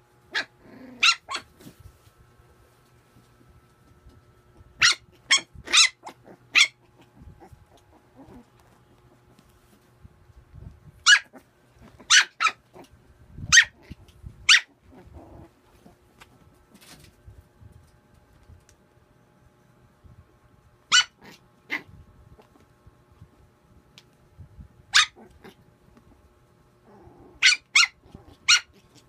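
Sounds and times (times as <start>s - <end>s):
puppy yapping: 0.3s - 1.5s, 4.8s - 8.5s, 11.0s - 12.9s, 20.9s - 21.9s, 24.9s - 25.6s, 27.4s - 29.0s.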